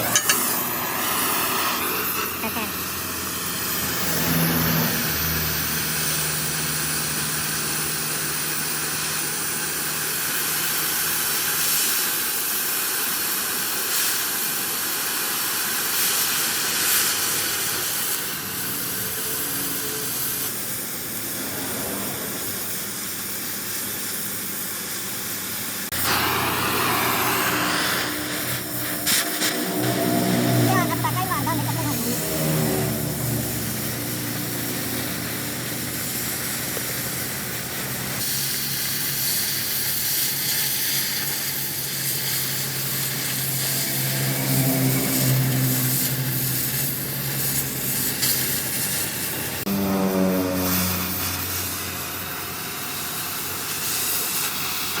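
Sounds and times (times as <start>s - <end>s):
low engine-like hum: 0.0s - 8.3s, 18.3s - 23.8s, 25.8s - 38.2s, 42.7s - 53.0s
machine hiss: 0.0s - 49.7s, 51.0s - 55.0s.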